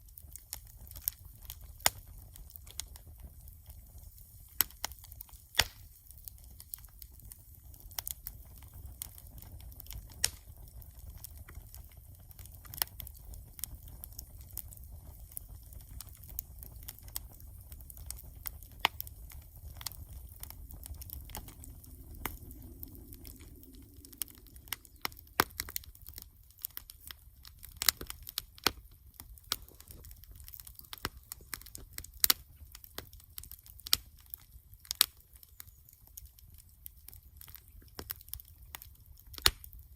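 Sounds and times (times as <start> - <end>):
bonfire crackling and popping: 0.0 - 39.9
low steady rumble: 16.9 - 27.5.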